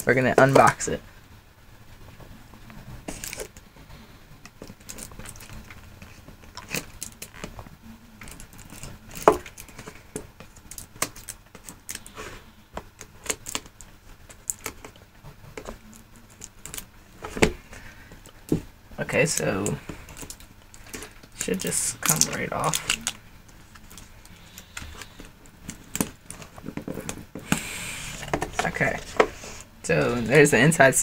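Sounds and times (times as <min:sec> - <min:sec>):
packaging clicks taps and rustles: 0:04.4 - 0:12.1, 0:12.7 - 0:18.6, 0:19.2 - 0:27.6.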